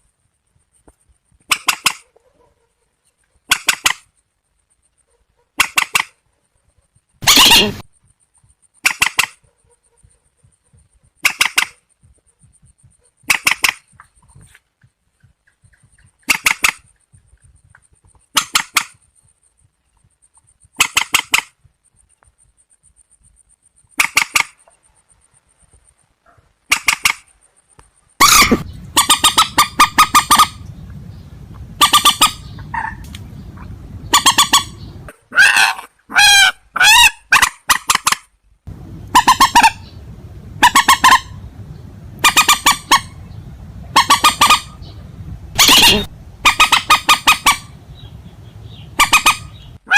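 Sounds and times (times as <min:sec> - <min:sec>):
waterbird honking calls: 0:07.2 - 0:07.8, 0:28.2 - 0:30.7, 0:31.7 - 0:38.1, 0:39.0 - 0:41.5, 0:42.2 - 0:49.9
steady low hum: 0:27.4 - 0:35.1, 0:38.5 - 0:49.8.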